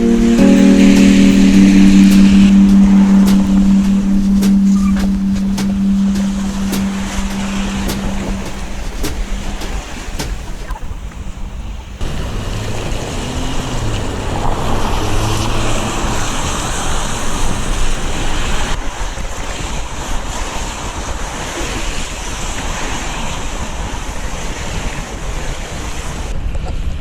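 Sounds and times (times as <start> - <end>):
low hum: 0.0 - 10.7, 12.0 - 18.8.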